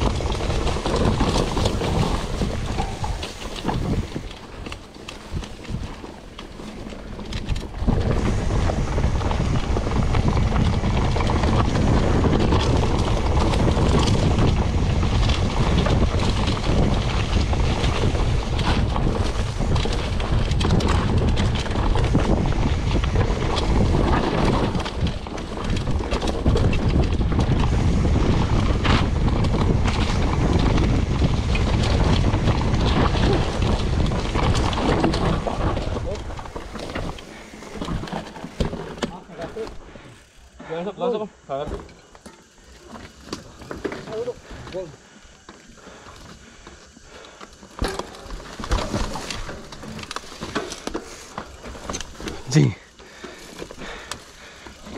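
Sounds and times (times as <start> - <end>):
wind buffeting microphone: 0.0 - 6.2, 7.0 - 38.7
bike rattling on rough trail: 0.0 - 54.9.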